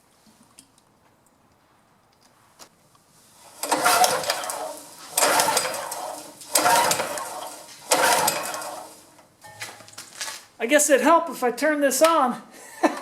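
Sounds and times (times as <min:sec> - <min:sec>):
small engine cranking: 0:03.4 - 0:09.2
recoil starter cord yanks: 0:03.4 - 0:10.2.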